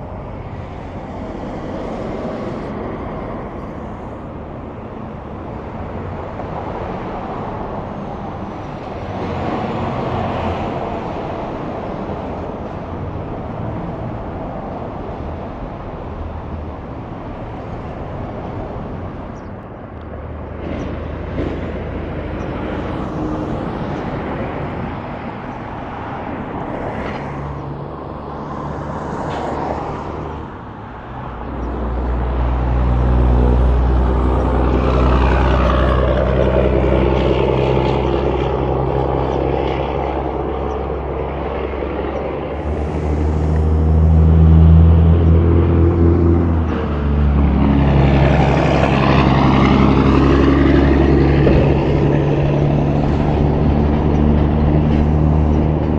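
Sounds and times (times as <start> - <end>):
heavy diesel truck engine: 27.6 - 55.9.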